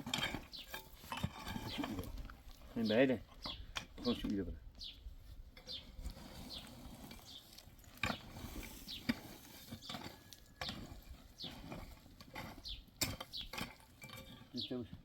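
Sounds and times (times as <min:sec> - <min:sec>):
small bird chirping: 0:04.8 - 0:07.6, 0:08.8 - 0:09.1, 0:12.6 - 0:13.6.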